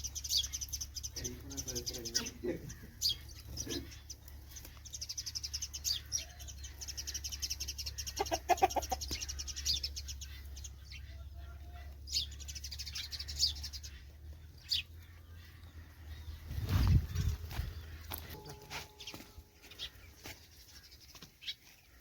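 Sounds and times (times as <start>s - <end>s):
small birds chirping: 0.0s - 22.0s
chicken clucking: 6.0s - 12.4s.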